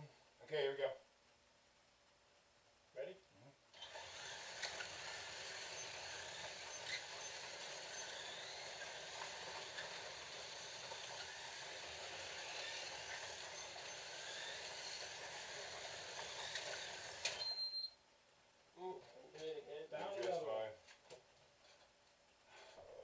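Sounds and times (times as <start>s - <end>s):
slot cars whirring: 3.8s - 17.7s.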